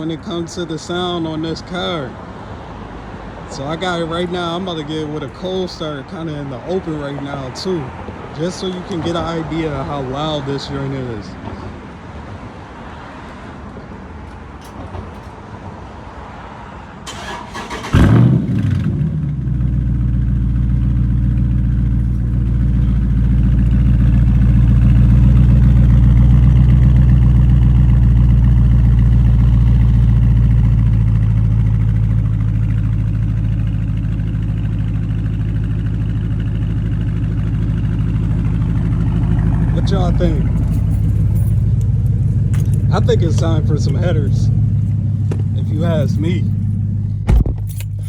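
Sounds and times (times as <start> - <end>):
engine cranking: 17.1 - 19.0, 21.2 - 48.0
engine fast idle: 17.1 - 48.0.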